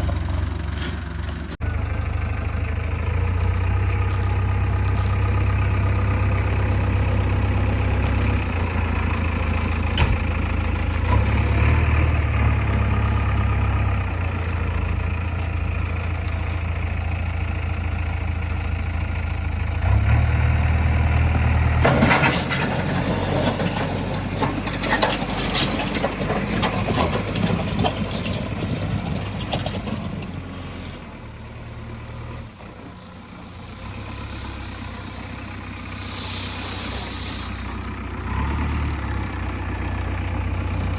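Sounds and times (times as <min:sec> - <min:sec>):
backhoe diesel engine working: 0:00.0 - 0:40.9.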